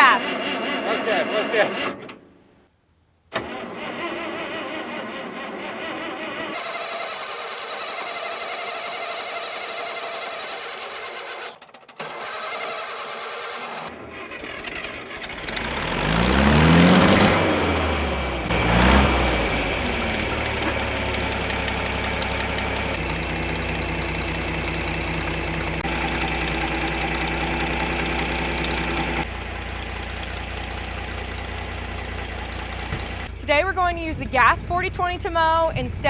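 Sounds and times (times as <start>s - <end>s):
tractor engine revving and idling: 0.0s - 2.2s, 3.3s - 36.0s.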